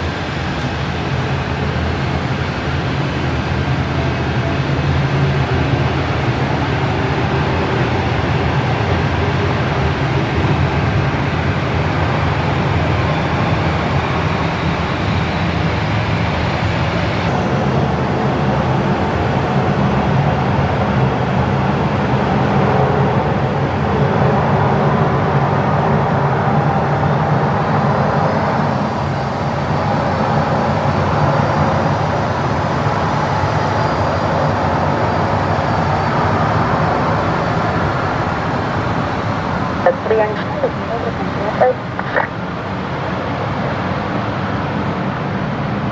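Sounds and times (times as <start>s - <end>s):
thin high whine: 0.0s - 17.3s, 39.7s - 42.4s
jet engines rumbling: 0.0s - 45.9s.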